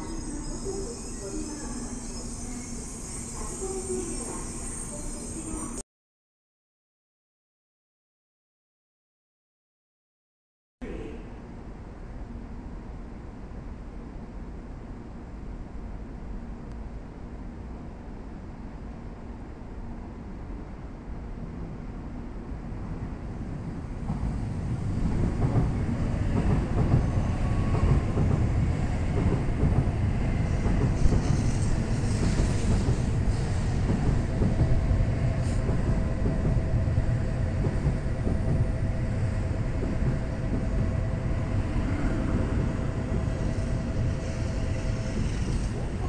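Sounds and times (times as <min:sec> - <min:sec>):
train wheels and motors rumbling: 0:22.8 - 0:46.0.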